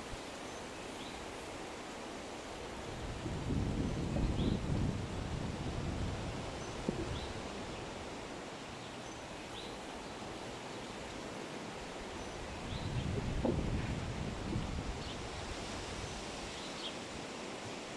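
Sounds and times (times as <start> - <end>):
wind gusting on microphone: 2.5 - 8.4, 11.9 - 17.6.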